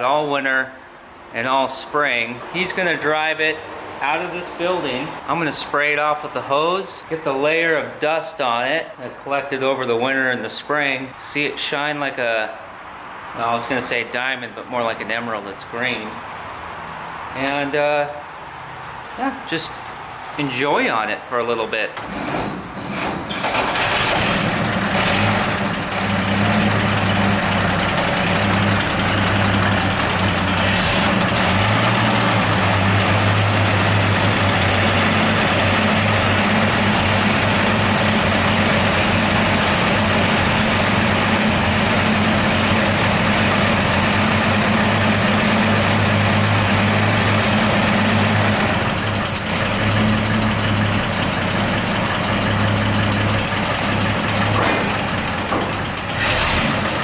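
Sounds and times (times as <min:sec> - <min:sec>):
truck engine rumbling: 0:21.4 - 0:57.0.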